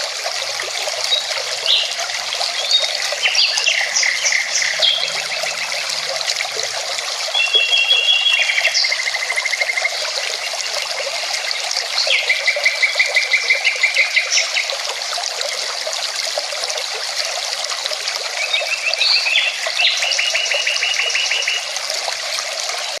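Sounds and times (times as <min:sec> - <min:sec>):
mountain river flowing: 0:00.0 - 0:09.2
songbird trilling: 0:07.4 - 0:09.5.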